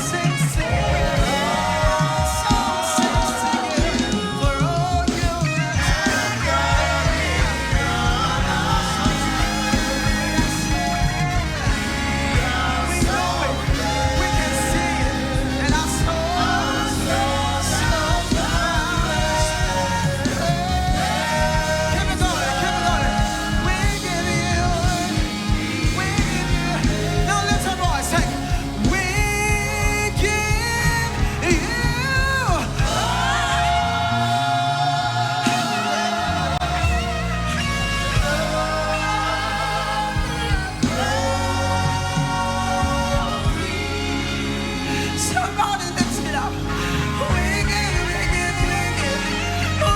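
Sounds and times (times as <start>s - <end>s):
band playing steady beat: 0.0s - 49.9s
voices singing: 0.0s - 49.9s.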